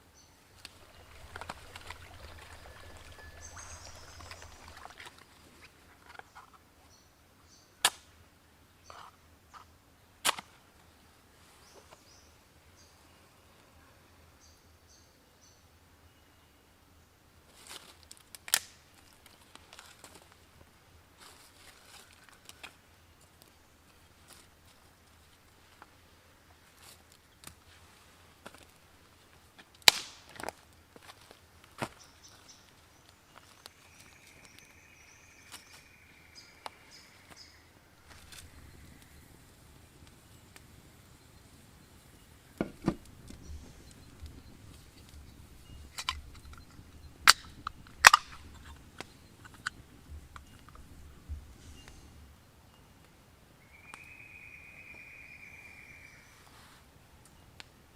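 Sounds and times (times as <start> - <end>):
bird chirping: 0.1 - 7.8, 31.9 - 53.0, 53.6 - 56.7.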